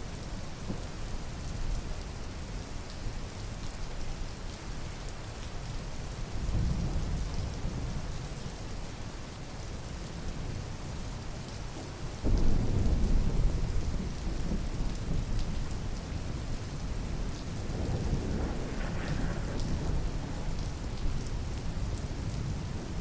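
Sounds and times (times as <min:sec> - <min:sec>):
steady rain falling: 0:00.0 - 0:23.0
low rumble of thunder: 0:06.2 - 0:08.5, 0:11.7 - 0:23.0.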